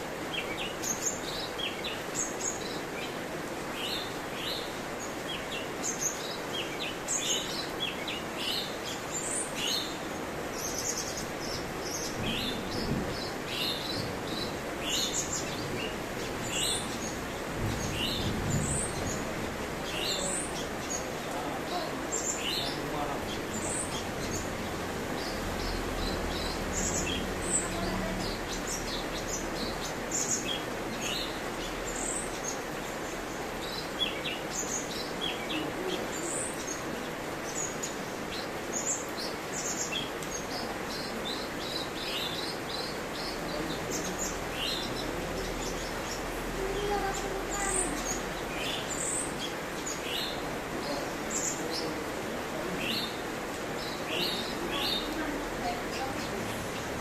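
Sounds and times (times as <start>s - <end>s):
faint background hiss: 0.0s - 57.0s.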